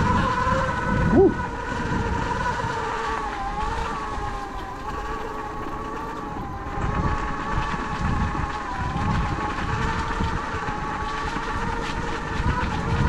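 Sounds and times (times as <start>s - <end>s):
electric motorbike motor whining: 0.0s - 13.0s.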